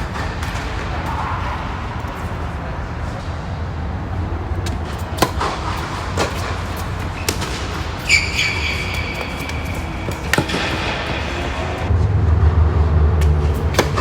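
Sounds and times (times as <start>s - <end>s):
tennis balls struck by rackets: 0.0s - 3.2s, 4.5s - 11.9s, 13.2s - 14.0s
high squeak: 6.4s - 11.4s
steady low rumble: 10.9s - 14.0s.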